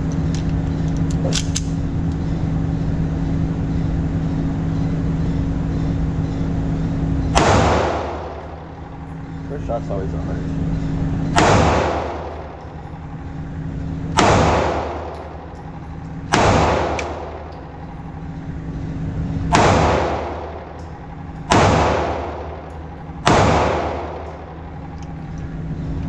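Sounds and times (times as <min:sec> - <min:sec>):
steady low hum: 0:00.0 - 0:26.0
pistol shots with echo: 0:07.3 - 0:09.0, 0:11.3 - 0:12.6, 0:14.1 - 0:15.6, 0:16.3 - 0:17.8, 0:19.5 - 0:20.8, 0:21.5 - 0:24.8.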